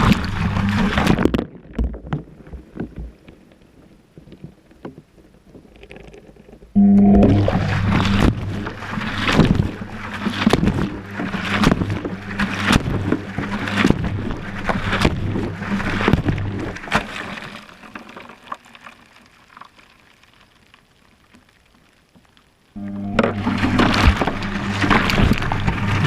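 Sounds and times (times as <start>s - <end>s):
water sloshing: 0.0s - 26.0s
washing machine drum hum: 22.8s - 26.0s.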